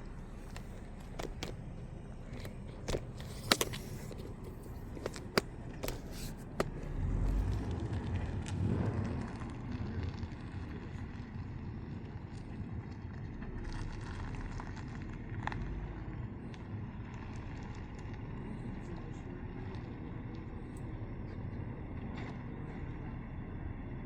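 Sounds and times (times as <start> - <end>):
road vehicle rumbling past: 0.0 - 24.0
sharp clicks and knocks: 2.2 - 7.0.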